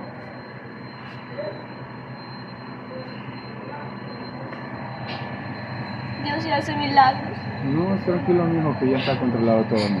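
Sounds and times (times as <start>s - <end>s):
low engine drone: 0.0s - 10.0s
faint voices: 6.1s - 10.0s.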